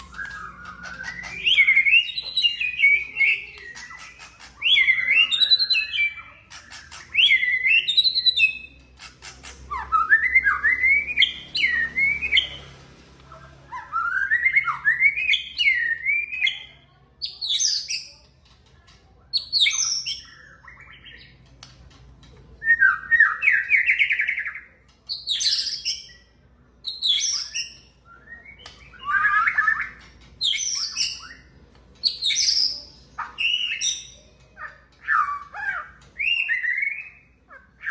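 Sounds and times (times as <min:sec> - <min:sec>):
bird singing whistled phrases: 0:00.0 - 0:06.4, 0:09.8 - 0:12.6, 0:26.9 - 0:34.2, 0:35.0 - 0:37.9.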